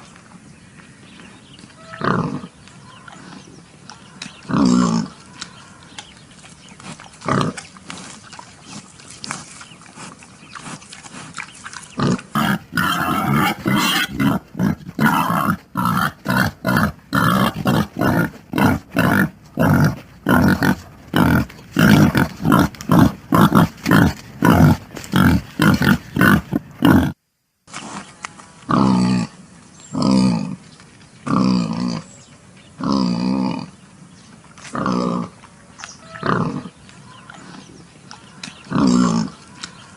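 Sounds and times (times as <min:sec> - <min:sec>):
pigs grunting and squealing: 0:01.8 - 0:03.4, 0:04.4 - 0:05.5, 0:06.8 - 0:27.2, 0:28.7 - 0:30.6, 0:32.8 - 0:33.7, 0:34.7 - 0:35.4, 0:36.0 - 0:37.8, 0:38.4 - 0:39.7.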